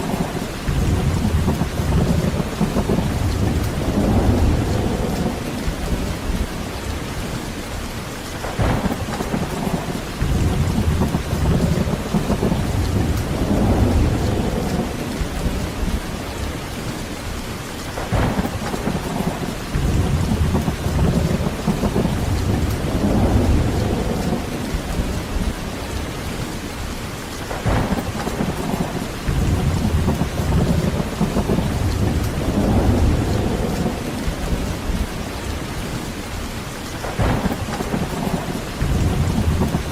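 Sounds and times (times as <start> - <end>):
rolling thunder rumbles: 0.0 - 7.5, 8.4 - 17.0, 17.9 - 26.6, 27.4 - 36.2, 36.9 - 39.9
heavy rain falling: 0.0 - 39.9
sharp thunder crack: 18.0 - 24.8, 27.5 - 34.5, 37.0 - 39.9.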